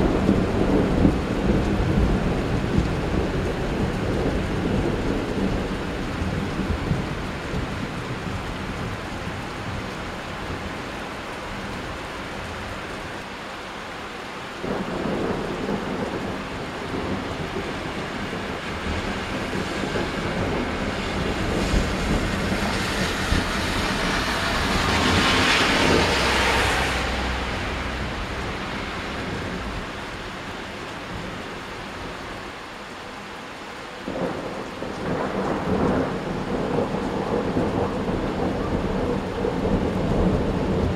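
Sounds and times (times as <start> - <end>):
rain falling: 0.0 - 40.9
thunder rolling: 14.6 - 30.2, 34.1 - 40.9.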